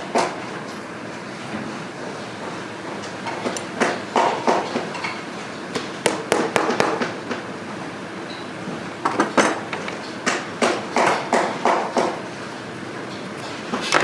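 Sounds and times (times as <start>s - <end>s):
hand tools knocking on a boot: 5.8s - 7.4s, 10.2s - 12.2s.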